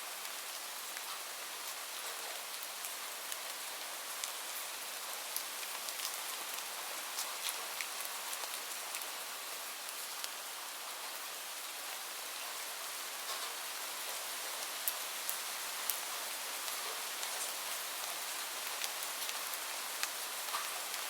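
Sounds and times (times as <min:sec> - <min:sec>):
steady rain hissing: 0:00.0 - 0:21.0
raindrops ticking close by: 0:13.2 - 0:21.0.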